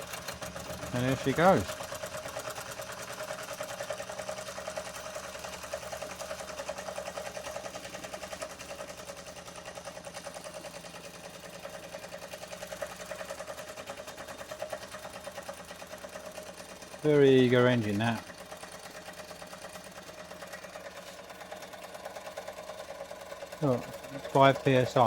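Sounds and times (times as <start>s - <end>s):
steam engine beating rapidly: 0.0s - 2.7s, 23.6s - 25.0s.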